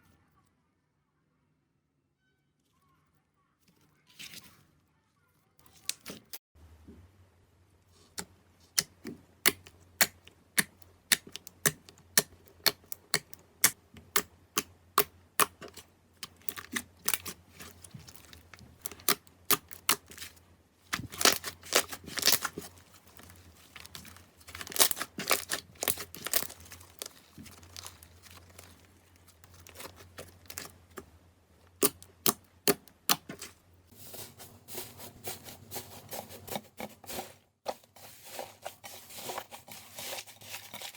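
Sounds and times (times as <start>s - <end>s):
slime clicking and crackling: 8.2s - 31.1s, 31.7s - 33.6s.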